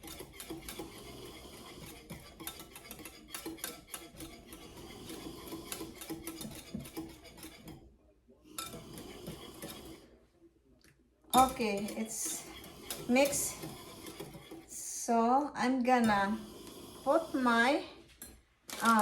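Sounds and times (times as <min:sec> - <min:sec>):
utensil clinking against bowl: 0:00.0 - 0:07.8, 0:08.5 - 0:10.0, 0:11.4 - 0:14.7
utensil scraping bowl: 0:00.0 - 0:10.2, 0:11.3 - 0:19.0.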